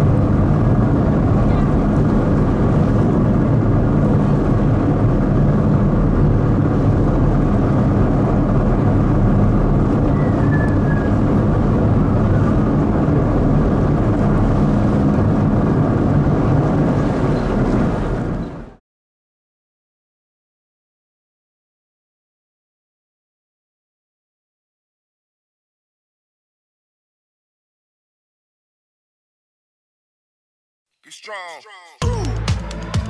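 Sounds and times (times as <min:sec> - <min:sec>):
ferry engines droning: 0:00.0 - 0:18.7.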